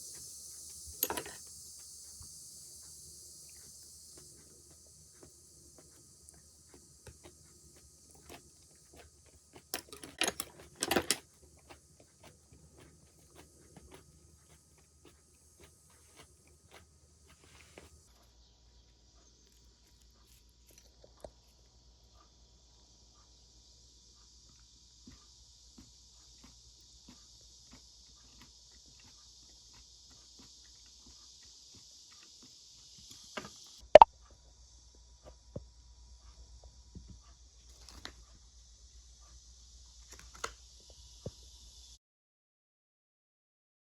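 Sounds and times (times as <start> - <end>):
cicadas droning: 0.0 - 42.0
small household clicks and taps: 0.9 - 1.5, 8.2 - 11.8
tableware clicking and clattering: 9.8 - 11.2.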